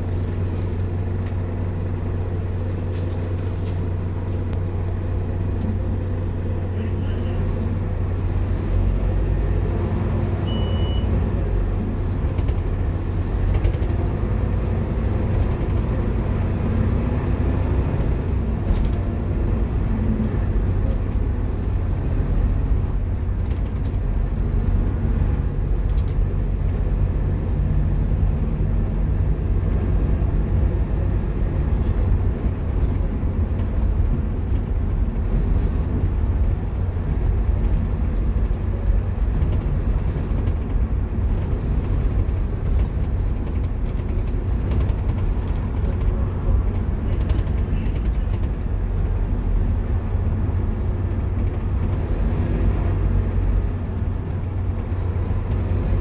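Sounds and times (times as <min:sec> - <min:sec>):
bus diesel engine: 0:00.0 - 0:56.0
road noise: 0:00.0 - 0:56.0.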